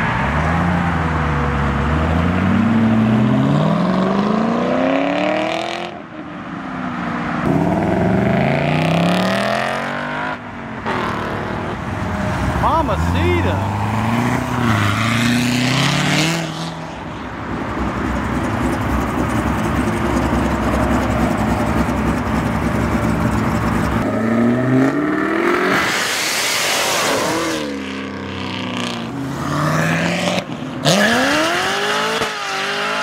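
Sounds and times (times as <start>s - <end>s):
car engines revving and accelerating: 0.0s - 33.0s.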